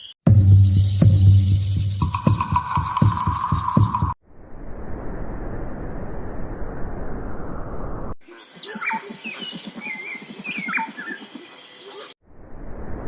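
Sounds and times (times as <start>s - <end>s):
birds chirping and calling: 8.2s - 12.2s.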